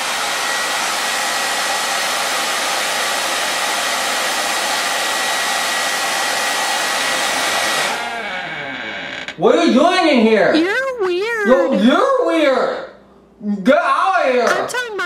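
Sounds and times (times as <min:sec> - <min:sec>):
hair dryer blowing air: 0:00.0 - 0:08.4.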